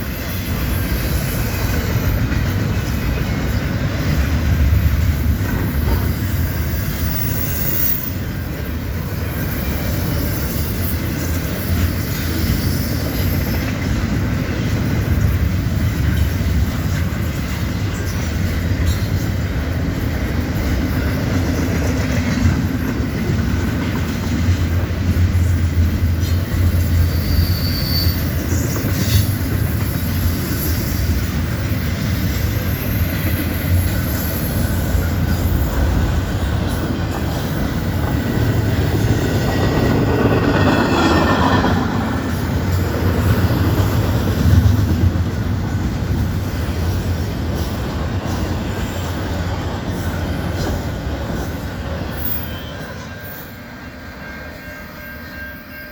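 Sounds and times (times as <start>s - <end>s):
train wheels rumbling on rail: 0.0s - 55.9s
wheel squeal: 5.4s - 8.5s, 26.7s - 31.1s.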